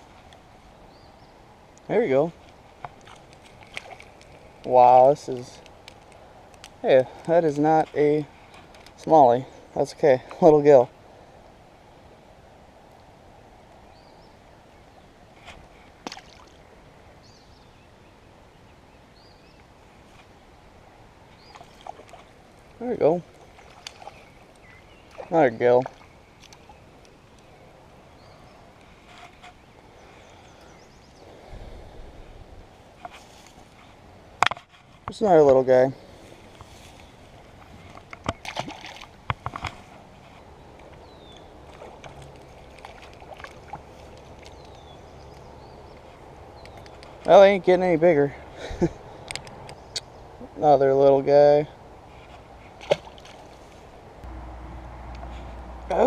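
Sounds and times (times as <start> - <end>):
river water flowing: 0.0 - 34.5, 35.2 - 50.4, 51.3 - 56.0
splashes in water: 3.0 - 4.2, 16.0 - 16.6, 21.4 - 22.3, 23.3 - 26.7, 38.4 - 39.2, 52.8 - 53.6
bird chirping: 22.8 - 31.4, 40.4 - 41.6, 44.4 - 47.5, 49.5 - 50.7.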